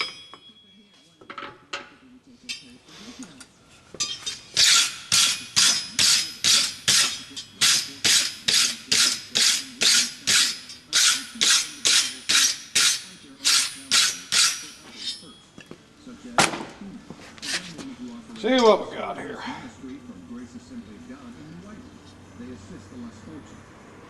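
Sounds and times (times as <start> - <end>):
hammer striking steel on anvil: 0.0 - 0.6, 3.9 - 15.4.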